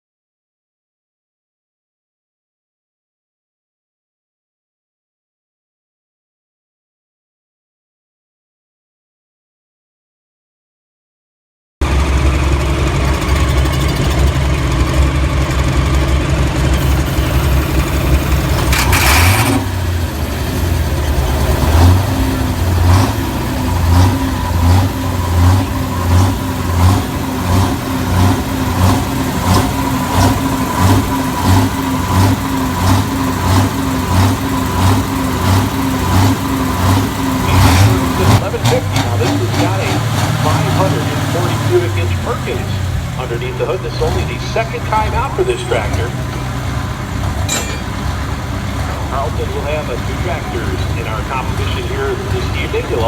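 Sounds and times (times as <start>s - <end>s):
diesel tractor engine idling: 11.8s - 53.0s.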